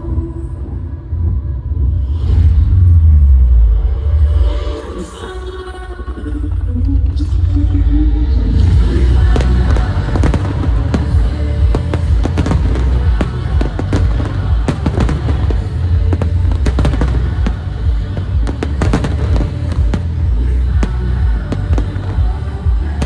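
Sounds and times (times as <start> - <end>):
music with heavy bass: 8.3 - 23.0
fireworks bangs and crackles: 8.7 - 23.0.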